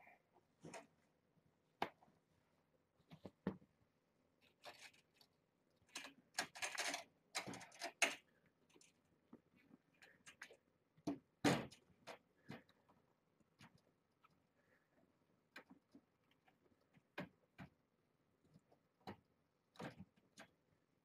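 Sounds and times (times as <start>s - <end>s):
objects being handled: 4.4s - 14.4s.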